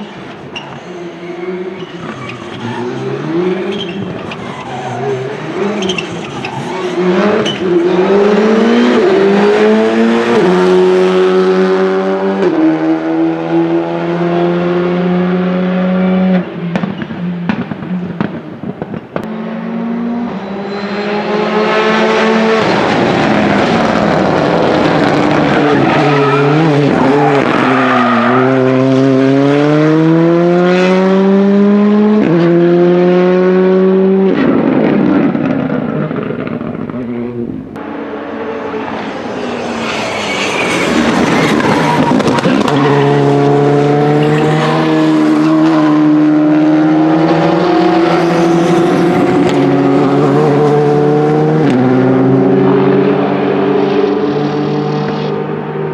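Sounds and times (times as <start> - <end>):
tyre squeal: 0.0 - 8.1, 20.2 - 22.9, 25.3 - 28.8, 38.5 - 45.6
rally car engines accelerating: 0.0 - 55.9.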